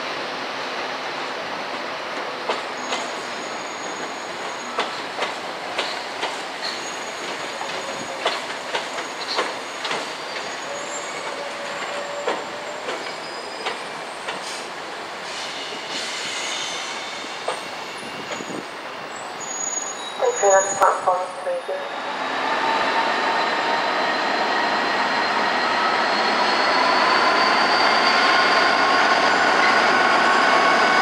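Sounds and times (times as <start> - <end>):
wheels squealing on rails: 2.7 - 20.8, 21.9 - 31.0
train wheels clacking: 4.0 - 10.6, 11.2 - 14.7.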